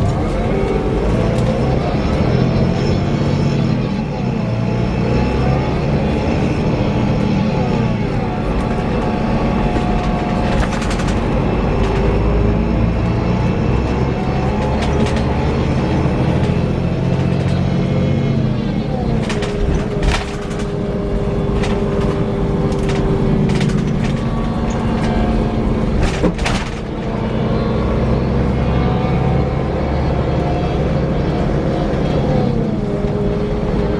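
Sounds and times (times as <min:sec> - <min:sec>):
coach engine whirring whine: 0:00.0 - 0:33.9
sharp rattles and clicks: 0:08.5 - 0:12.2, 0:14.4 - 0:17.6, 0:19.2 - 0:27.1.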